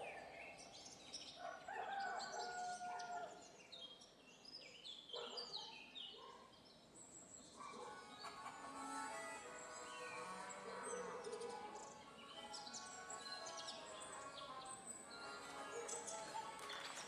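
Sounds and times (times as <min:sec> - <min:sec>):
birds chirping: 0:00.0 - 0:03.3, 0:04.7 - 0:17.0
rooster crowing: 0:01.6 - 0:03.3.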